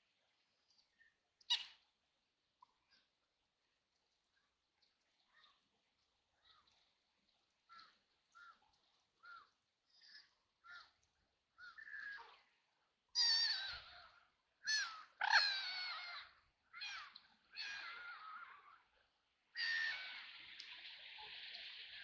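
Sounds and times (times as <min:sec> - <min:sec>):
water splashing: 0:19.8 - 0:22.0.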